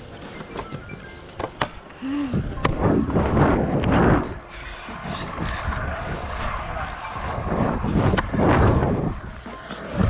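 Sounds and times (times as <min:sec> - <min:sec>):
rushing wheels and wind: 0:02.3 - 0:10.0
scooter sharp clacks: 0:02.6 - 0:10.0.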